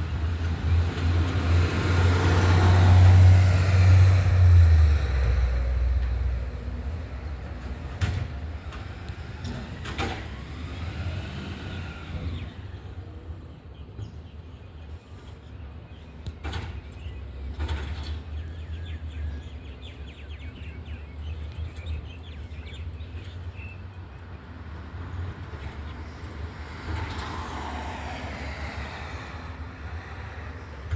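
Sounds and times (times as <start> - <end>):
knocks and clatters: 7.6 - 10.4.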